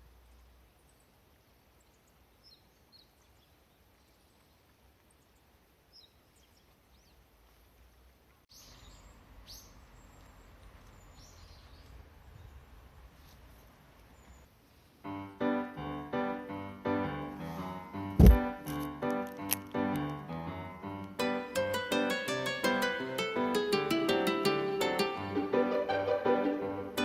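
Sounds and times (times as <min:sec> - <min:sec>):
piano-like keyboard music: 0:15.1 - 0:27.0.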